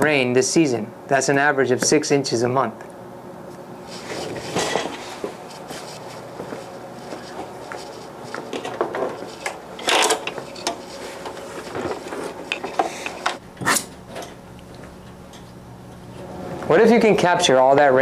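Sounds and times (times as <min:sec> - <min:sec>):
papers and bag rustling: 0:10.0 - 0:12.8.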